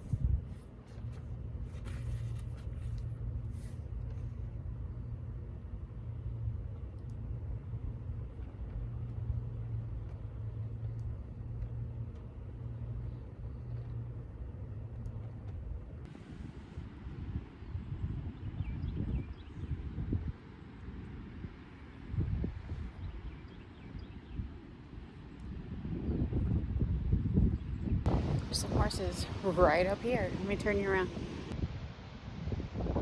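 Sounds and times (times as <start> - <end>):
vehicle rumble from inside: 0.0 - 21.3.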